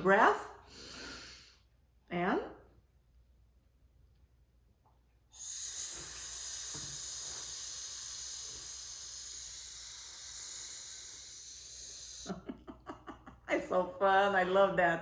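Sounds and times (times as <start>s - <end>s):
person making shh hiss: 0.7s - 1.7s, 5.3s - 12.6s.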